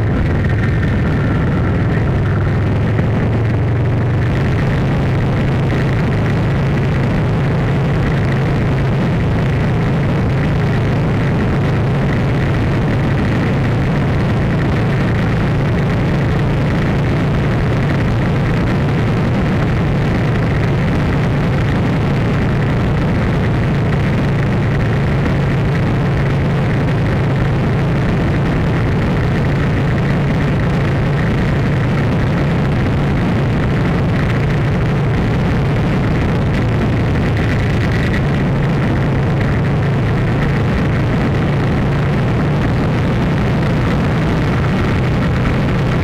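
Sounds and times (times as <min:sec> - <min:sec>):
loud steady noise: 0:00.0 - 0:46.0
low hum: 0:00.0 - 0:46.0.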